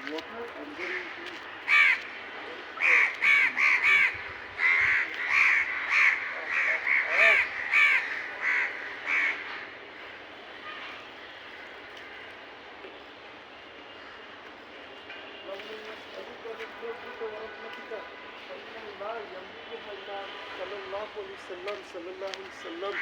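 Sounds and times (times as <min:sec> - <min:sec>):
crows cawing: 0:00.6 - 0:12.5, 0:13.9 - 0:14.4, 0:22.5 - 0:23.0.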